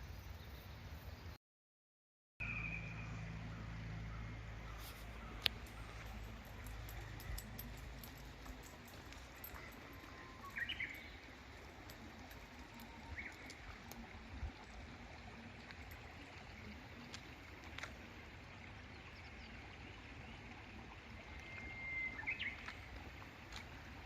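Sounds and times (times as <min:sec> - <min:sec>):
birds chirping: 0:02.5 - 0:14.1.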